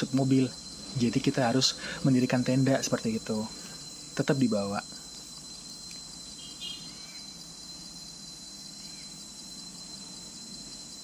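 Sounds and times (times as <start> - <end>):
crickets and insects chirring: 0.0 - 11.0
faint bird chirps: 3.4 - 10.6.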